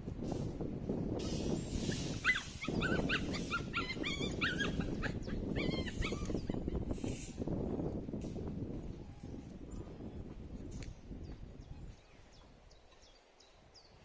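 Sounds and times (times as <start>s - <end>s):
dog whining: 1.9s - 6.9s.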